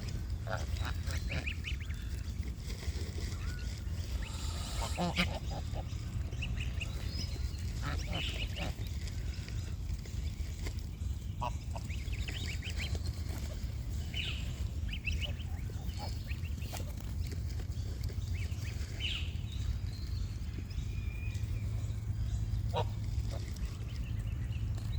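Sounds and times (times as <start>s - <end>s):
steady low rumble: 0.0s - 24.9s
geese honking: 0.4s - 1.9s, 4.1s - 9.3s, 22.6s - 23.7s
ducks quacking: 0.4s - 2.2s, 4.0s - 9.7s, 11.3s - 17.0s, 22.6s - 23.7s.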